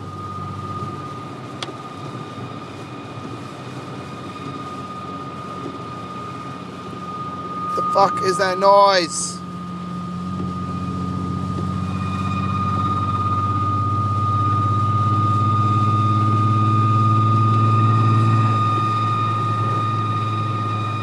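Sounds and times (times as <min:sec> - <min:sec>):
car engine and road drone: 0:00.0 - 0:21.0
high-pitched squeal: 0:07.1 - 0:09.4, 0:11.7 - 0:21.0.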